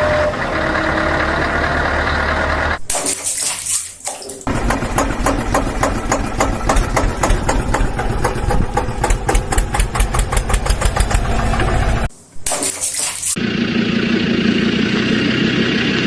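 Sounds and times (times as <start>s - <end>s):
engine idling with ticking knock: 4.5s - 12.1s.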